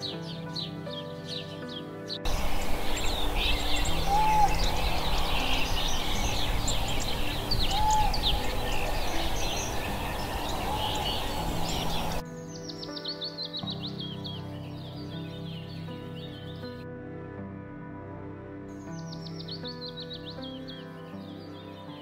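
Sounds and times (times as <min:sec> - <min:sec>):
small birds chirping: 0:00.0 - 0:16.8, 0:18.8 - 0:22.0
soft background music: 0:00.0 - 0:22.0
loud steady rushing noise: 0:02.3 - 0:12.2
low whistled call: 0:02.3 - 0:12.2.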